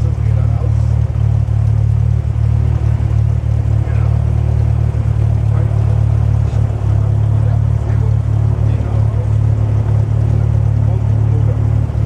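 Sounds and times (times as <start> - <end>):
airplane engine and propeller drone: 0.0 - 12.0.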